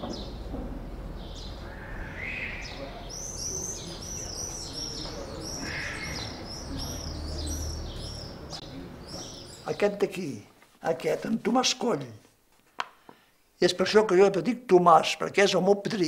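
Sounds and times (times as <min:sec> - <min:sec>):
small birds chirping: 0:00.0 - 0:10.5.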